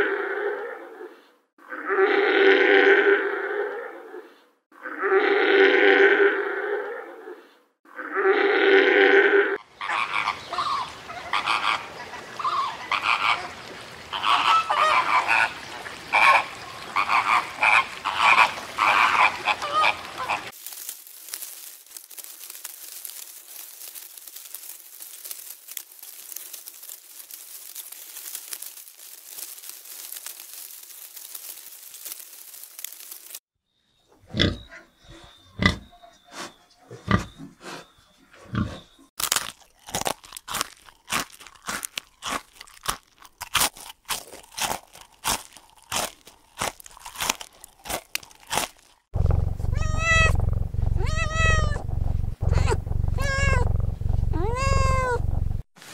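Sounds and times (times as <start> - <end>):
piglets crunching and clicking: 19.8 - 33.4, 39.2 - 55.2
crackling hiss: 20.2 - 33.4, 43.6 - 55.9
cat meowing: 49.6 - 53.7, 54.3 - 55.3.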